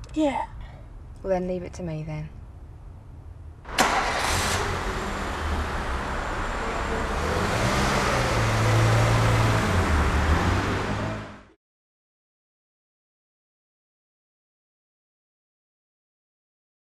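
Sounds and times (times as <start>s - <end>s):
car engine running: 3.7s - 11.5s.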